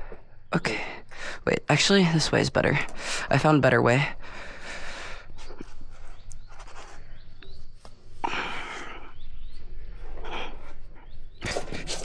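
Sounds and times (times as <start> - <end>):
person breathing hard: 4.2 - 6.0, 8.2 - 9.2
light knocks and scrapes: 11.4 - 12.0.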